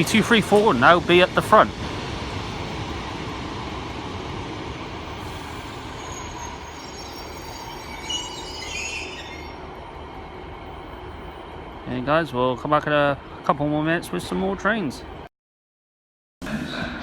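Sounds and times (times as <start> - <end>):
diesel train rumbling slowly: 0.0 - 15.3
wheel squeals: 5.6 - 9.6.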